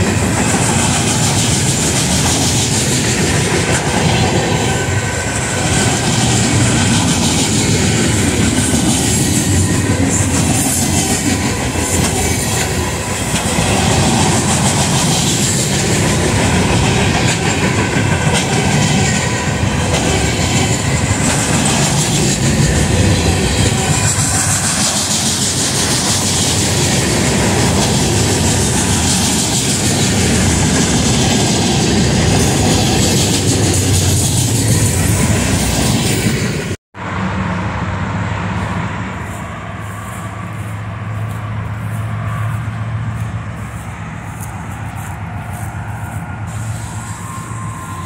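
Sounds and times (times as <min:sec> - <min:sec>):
wheels clicking over rail joints: 0:00.0 - 0:36.6
steel wheels rumbling on rail: 0:00.0 - 0:48.0.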